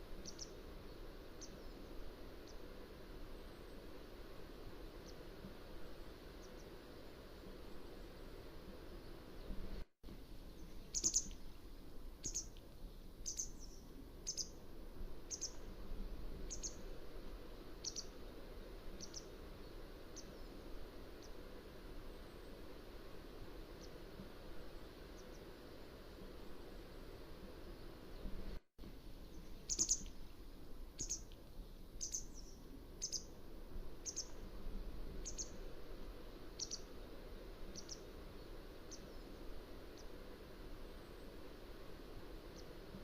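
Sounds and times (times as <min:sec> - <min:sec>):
low background hiss: 0:00.0 - 0:43.0
bird chirping: 0:00.2 - 0:00.6, 0:10.5 - 0:11.4, 0:12.2 - 0:12.6, 0:13.2 - 0:14.6, 0:15.3 - 0:15.6, 0:16.5 - 0:16.8, 0:17.8 - 0:18.2, 0:19.0 - 0:19.3, 0:29.2 - 0:30.2, 0:31.0 - 0:33.4, 0:34.0 - 0:34.4, 0:35.2 - 0:35.6, 0:36.6 - 0:36.9, 0:37.7 - 0:38.1.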